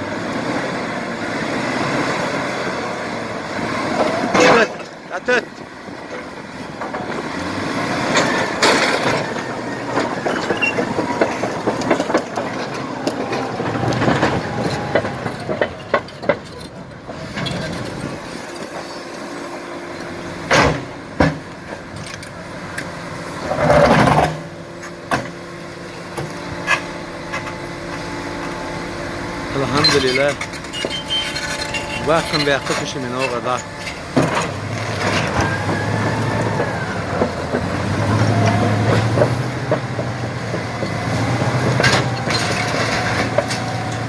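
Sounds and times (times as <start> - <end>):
earthmoving machine running: 27.4 - 44.0.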